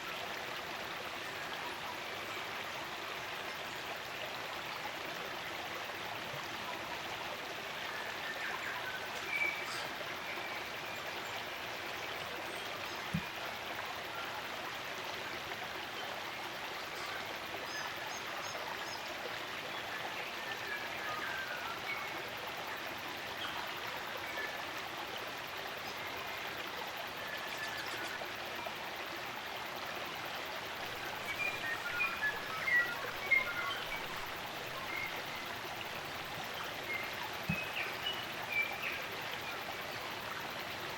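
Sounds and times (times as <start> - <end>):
stream running: 0.0 - 40.9
forest birds chirping: 27.1 - 28.4, 30.6 - 40.9.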